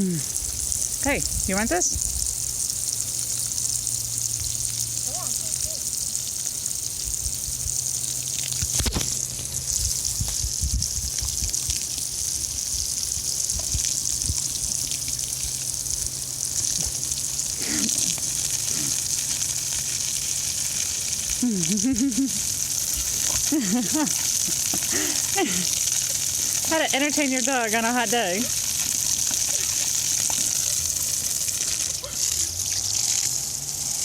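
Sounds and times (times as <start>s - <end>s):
garden hose spraying water: 0.0s - 34.0s
low knocks and splashes: 28.5s - 32.8s.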